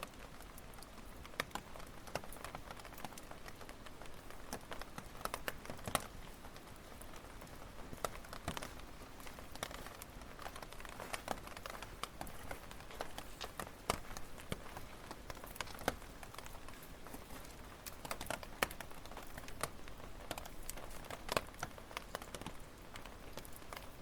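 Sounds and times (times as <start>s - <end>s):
soft steady hiss: 0.0s - 24.0s
wood fire crackling: 0.0s - 24.0s
fire pops and snaps: 0.1s - 24.0s.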